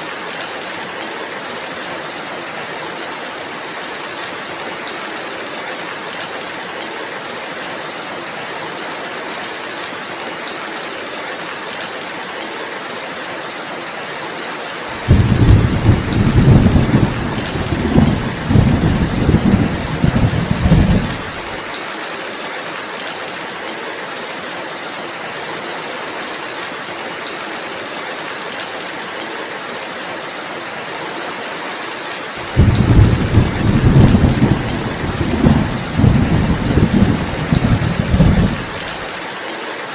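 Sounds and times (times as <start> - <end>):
steady rainfall hiss: 0.0 - 39.9
low thunder rolling: 15.0 - 21.6, 32.4 - 39.1.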